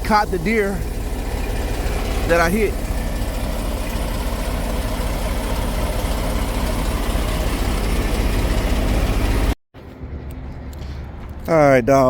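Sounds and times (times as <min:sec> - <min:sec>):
diesel engine idling: 0:00.0 - 0:11.5.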